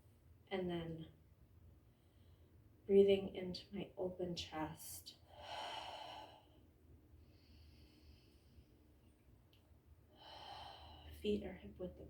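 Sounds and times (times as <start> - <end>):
woman breathing deeply: 5.3 - 8.8, 10.1 - 11.2.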